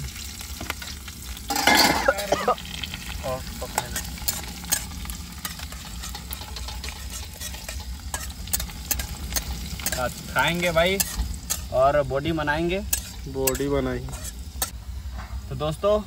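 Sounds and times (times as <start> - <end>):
onion sizzling in hot oil: 0.0 - 14.8
metal spoon scraping pan: 1.5 - 2.5, 3.7 - 11.8, 12.6 - 14.7.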